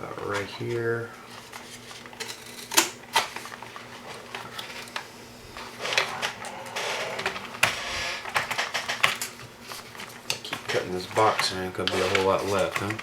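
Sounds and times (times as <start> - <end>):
cardboard handling clicks and knocks: 5.8 - 13.0.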